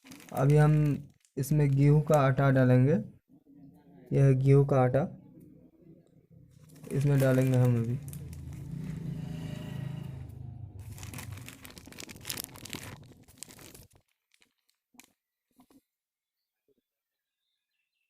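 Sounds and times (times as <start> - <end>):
flour packet crinkling: 0.0 - 2.4, 6.6 - 9.1, 10.8 - 15.8.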